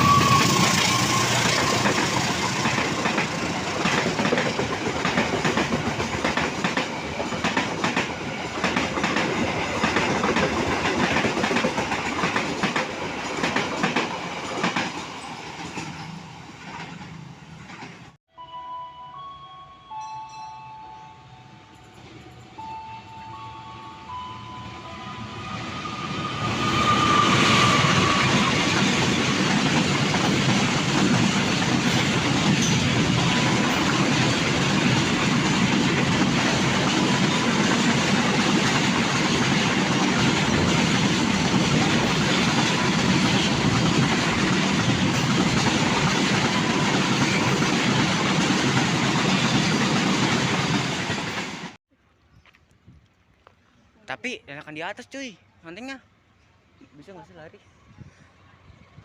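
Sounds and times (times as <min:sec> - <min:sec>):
train wheels rumbling on rails: 0:00.0 - 0:18.2, 0:25.1 - 0:51.8.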